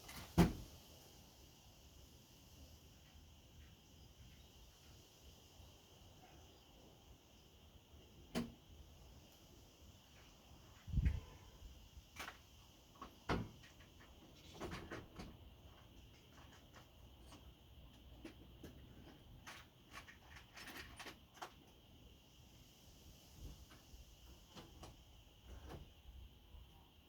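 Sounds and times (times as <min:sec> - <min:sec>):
clicks and knocks of tools: 0:13.0 - 0:21.8.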